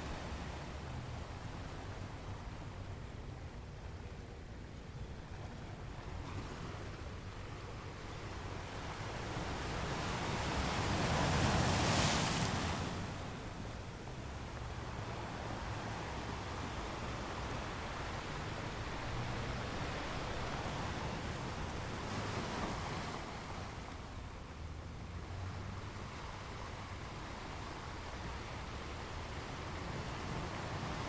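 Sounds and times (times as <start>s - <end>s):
ocean surf washing: 8.5s - 31.0s.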